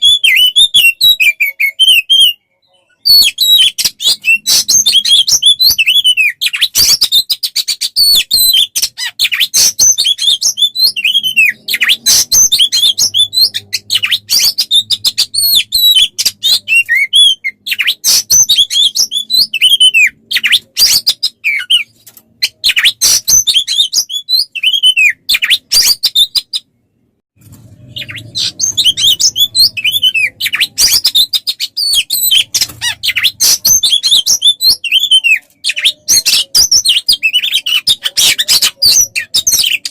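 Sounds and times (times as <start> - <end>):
songbird singing: 27.8 - 39.9.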